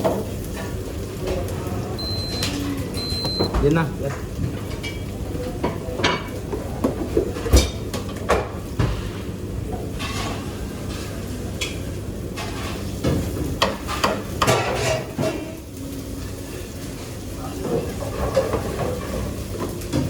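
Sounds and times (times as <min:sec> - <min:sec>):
dishes and pots clinking: 0:09.8 - 0:15.6, 0:17.5 - 0:20.0.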